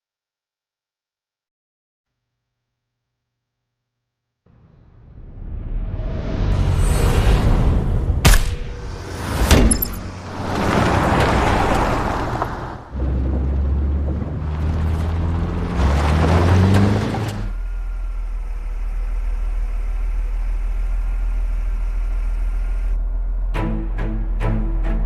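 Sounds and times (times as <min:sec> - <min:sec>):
car engine revving: 0:08.7 - 0:25.0.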